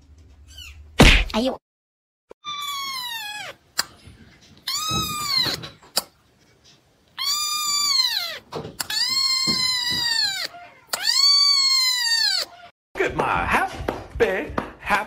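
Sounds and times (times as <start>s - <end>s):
kitten meowing: 2.4s - 3.6s, 4.7s - 5.7s, 7.2s - 12.7s.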